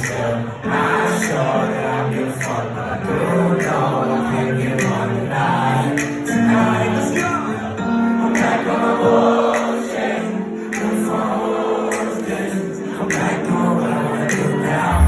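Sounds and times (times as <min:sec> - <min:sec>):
voices singing in harmony: 0:00.0 - 0:15.0.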